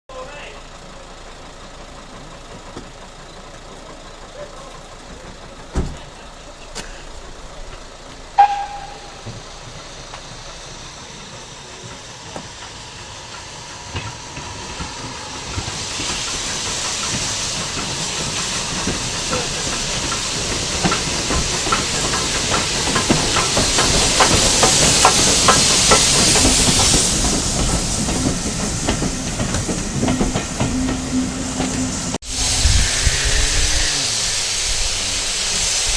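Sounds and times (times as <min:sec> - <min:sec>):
hissing steam: 0:00.3 - 0:35.9
train wheels clicking: 0:00.4 - 0:35.9
sharp knock: 0:08.4 - 0:09.4.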